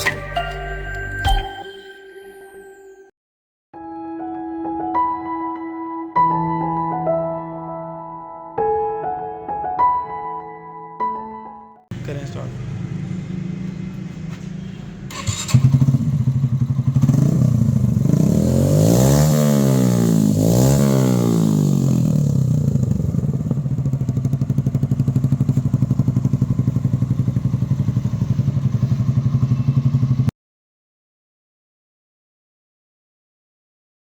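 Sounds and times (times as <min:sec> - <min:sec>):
motorcycle engine revving and idling: 0:11.9 - 0:30.3.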